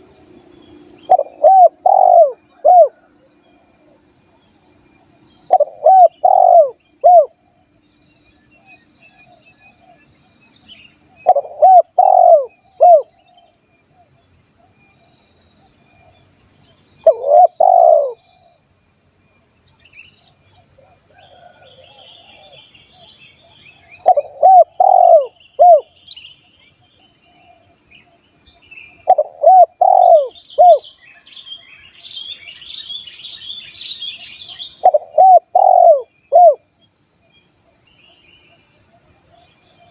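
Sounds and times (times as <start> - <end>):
high insect drone: 0.0 - 39.9
small birds chirping: 0.0 - 39.9
dove cooing: 1.0 - 3.2, 5.5 - 7.4, 11.2 - 13.5, 17.0 - 18.5, 20.8 - 22.7, 24.0 - 25.9, 29.0 - 30.9, 34.7 - 36.6.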